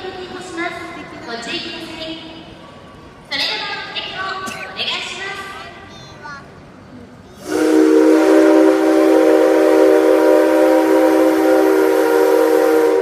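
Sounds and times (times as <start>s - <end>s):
steam hissing: 7.3s - 13.0s
steam locomotive whistle: 7.4s - 13.0s.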